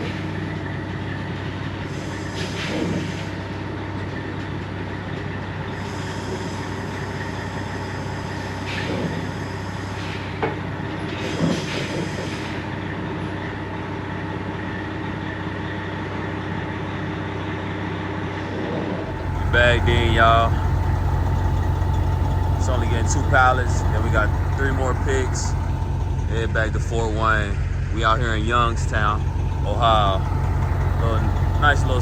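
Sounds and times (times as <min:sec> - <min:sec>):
diesel truck engine running: 0:00.0 - 0:32.0
high-pitched brake squeals: 0:05.7 - 0:10.4.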